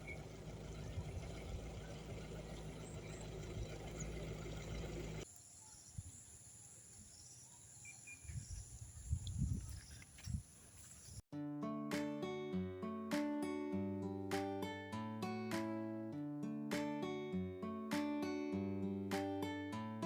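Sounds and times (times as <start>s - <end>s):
low hum: 0.0s - 5.2s
crickets droning: 0.0s - 11.2s.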